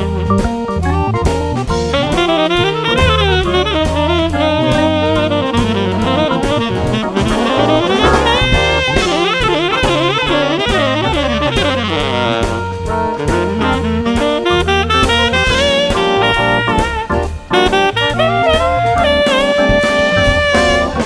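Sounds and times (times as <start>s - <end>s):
saxophone lead: 1.7s - 21.0s
walking bass line: 6.8s - 9.3s
drum kit beat: 7.2s - 9.8s.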